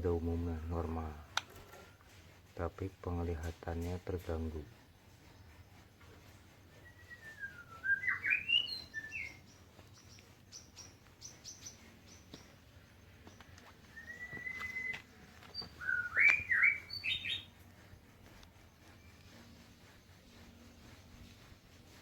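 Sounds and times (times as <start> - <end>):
bird singing whistled phrases: 6.8 - 12.2, 13.8 - 17.5
short high bird chips: 14.0 - 17.5.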